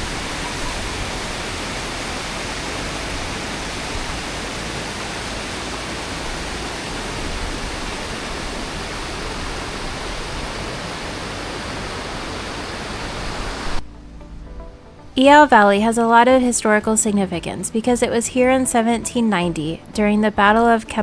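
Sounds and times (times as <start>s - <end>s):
stream water rushing: 0.0s - 13.8s.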